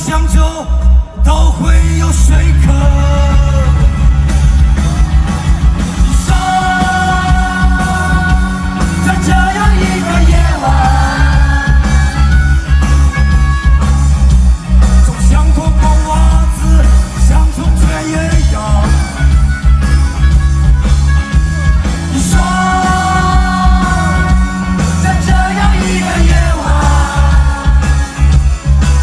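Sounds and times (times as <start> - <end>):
amplified guitars: 0.0 - 29.0
drums: 0.0 - 29.0
heavy bass: 0.0 - 29.0
person singing: 6.1 - 12.4, 22.1 - 28.6.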